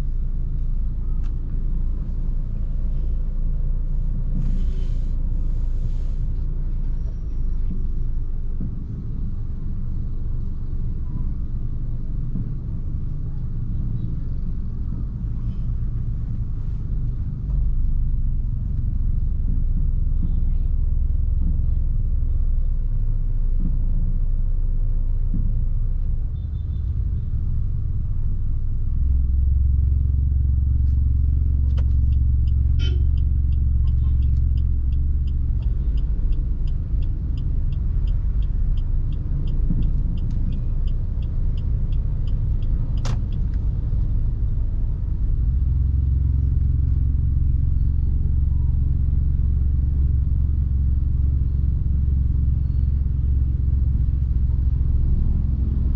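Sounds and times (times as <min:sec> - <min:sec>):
car engine and road rumble: 0:00.0 - 0:55.9
even ticking: 0:32.0 - 0:43.9.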